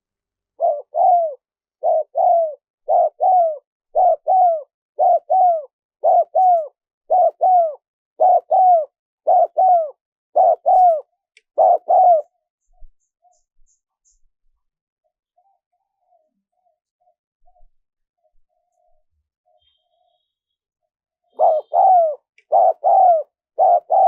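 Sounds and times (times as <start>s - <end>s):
dove cooing: 0.6s - 12.4s, 21.3s - 24.0s.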